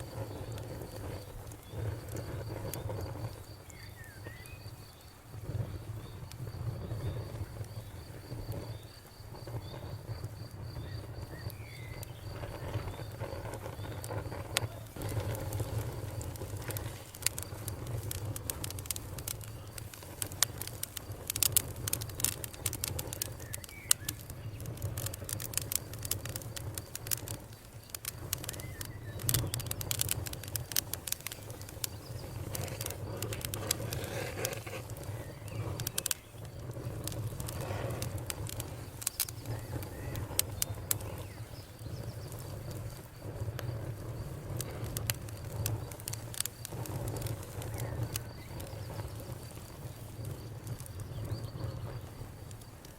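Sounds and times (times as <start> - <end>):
burning wood popping: 0.0 - 52.9
campfire crackling: 0.0 - 52.9.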